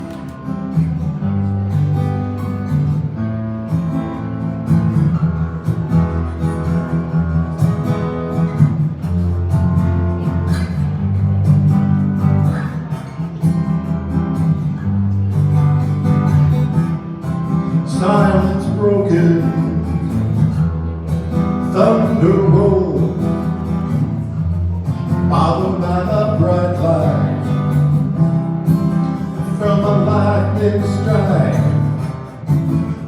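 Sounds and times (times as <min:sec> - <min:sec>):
acoustic guitar playing chords: 0:00.0 - 0:33.0.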